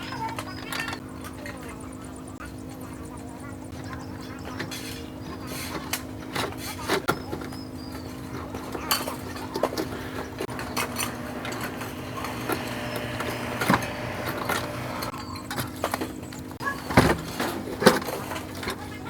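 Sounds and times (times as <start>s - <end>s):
steady hum: 10.0s - 15.1s.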